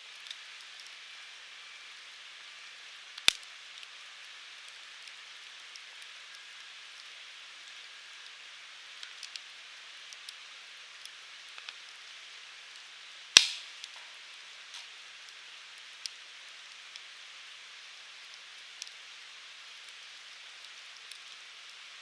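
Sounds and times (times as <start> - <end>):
wood fire hissing and crackling: 0.0 - 22.0
loud sharp pop of fire: 13.4 - 14.2.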